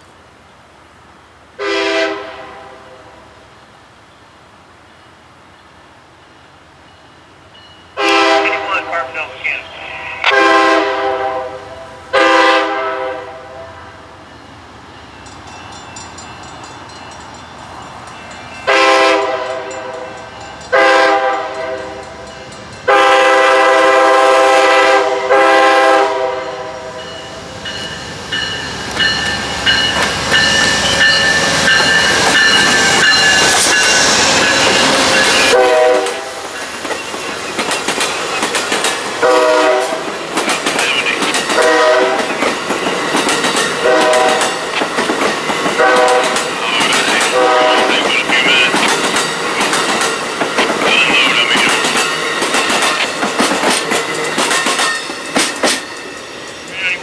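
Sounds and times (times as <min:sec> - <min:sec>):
locomotive air horn blasts: 0:01.6 - 0:03.1, 0:08.0 - 0:09.1, 0:09.9 - 0:13.9, 0:18.7 - 0:20.1, 0:20.7 - 0:22.0, 0:22.9 - 0:27.0, 0:35.3 - 0:36.4, 0:39.2 - 0:40.0, 0:41.6 - 0:42.3, 0:43.8 - 0:44.5, 0:45.8 - 0:46.4, 0:47.3 - 0:48.0
wheels clicking over rail joints: 0:48.7 - 0:55.9.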